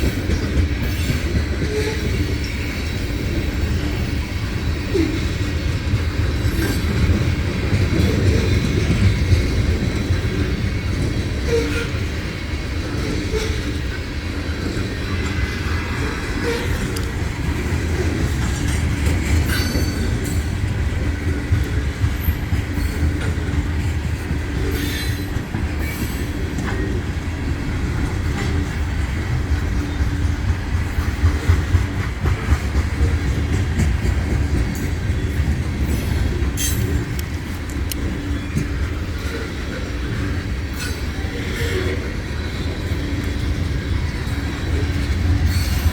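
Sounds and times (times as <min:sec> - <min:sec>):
train wheels rumbling on track: 0:00.0 - 0:45.9
wheels clicking and squealing: 0:00.0 - 0:45.9.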